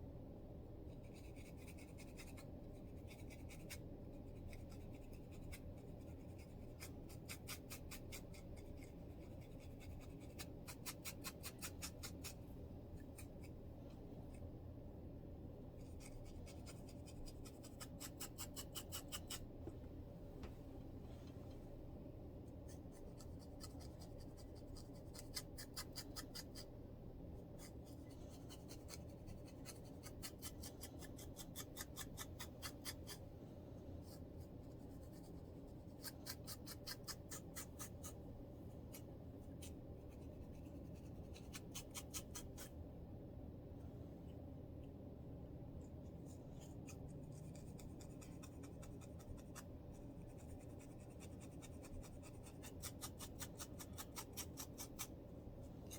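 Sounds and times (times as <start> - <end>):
faint low hum: 0.0 - 55.9
scratching scalp: 0.9 - 13.6, 15.8 - 19.5, 22.5 - 26.7, 27.5 - 33.3, 34.0 - 38.2, 38.8 - 42.8, 46.1 - 55.1.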